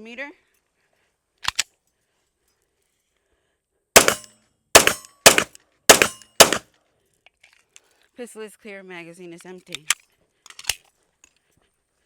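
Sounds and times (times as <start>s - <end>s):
pistol shots: 4.0s - 6.6s
quick clicks: 4.0s - 6.6s.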